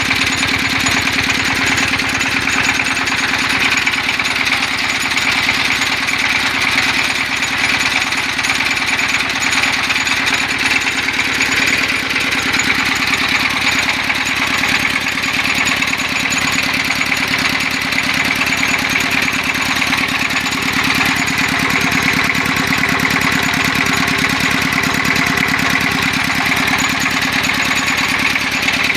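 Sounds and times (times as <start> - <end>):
diesel engine idling: 0.0 - 28.9.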